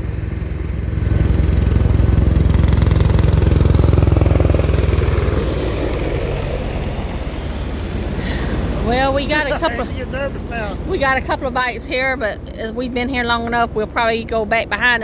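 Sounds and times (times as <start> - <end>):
helicopter rotor beating: 1.0 - 11.5.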